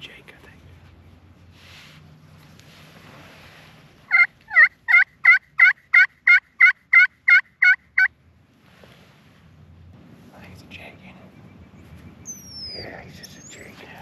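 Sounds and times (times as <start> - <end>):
turkey yelping: 4.1 - 8.1.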